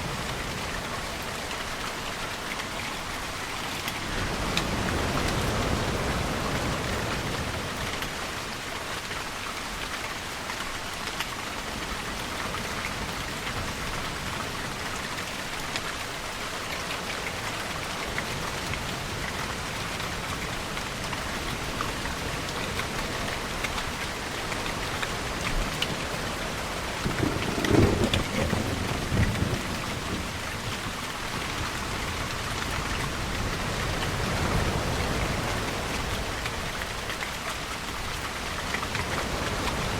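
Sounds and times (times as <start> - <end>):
steady rainfall: 0.0 - 39.9
rumble of thunder: 25.5 - 32.1.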